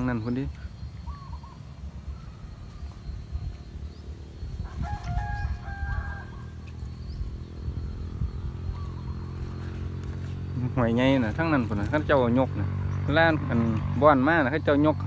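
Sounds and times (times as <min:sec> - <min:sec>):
steady low rumble: 0:00.0 - 0:15.0
rooster crowing: 0:04.6 - 0:06.8.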